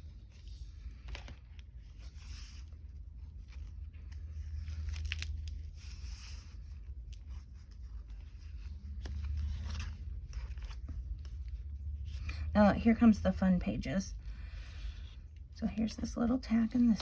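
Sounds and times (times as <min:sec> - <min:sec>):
paper rustling: 0:00.0 - 0:12.4, 0:15.8 - 0:17.0
low steady hum: 0:00.0 - 0:17.0.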